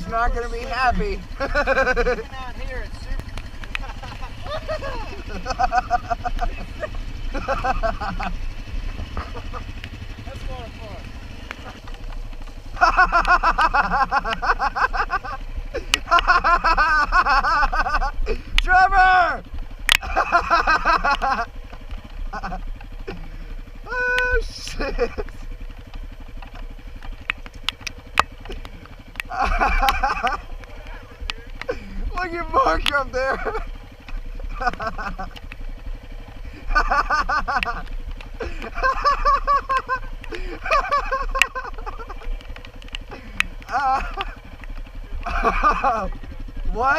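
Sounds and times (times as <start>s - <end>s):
dirt bike engine revving: 0.0s - 46.9s
low engine running: 0.0s - 46.9s
person laughing hard: 1.3s - 2.3s, 3.8s - 8.4s, 9.0s - 9.7s, 12.7s - 18.6s, 20.0s - 21.5s, 22.2s - 25.5s, 29.2s - 30.6s, 31.6s - 33.8s, 34.4s - 35.4s, 36.4s - 42.4s, 43.0s - 46.2s.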